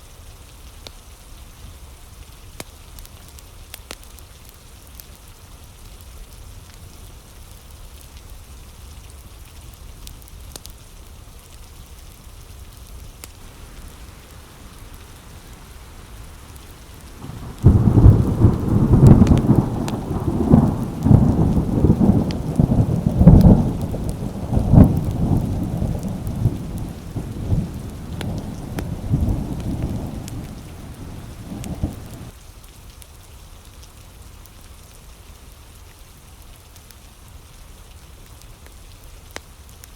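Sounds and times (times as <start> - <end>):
rolling thunder: 13.4 - 32.3
rain on window glass: 13.4 - 32.4.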